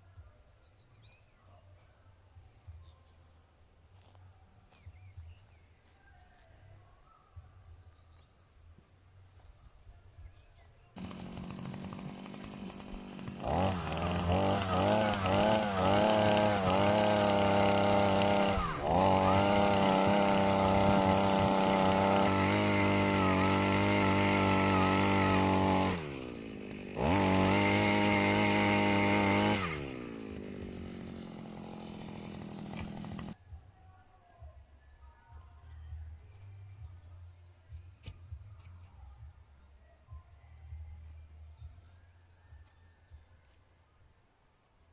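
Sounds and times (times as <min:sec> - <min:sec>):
chainsaw idling and revving: 0:11.0 - 0:33.4.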